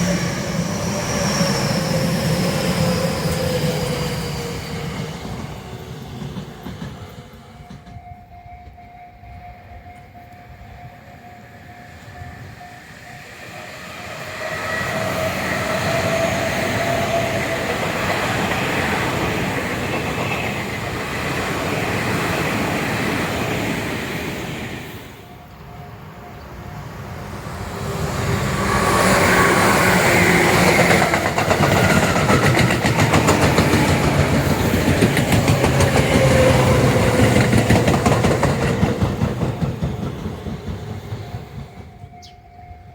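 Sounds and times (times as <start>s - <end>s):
electric trains passing: 0.0s - 42.9s
wheels clattering over rail joints: 30.4s - 42.2s.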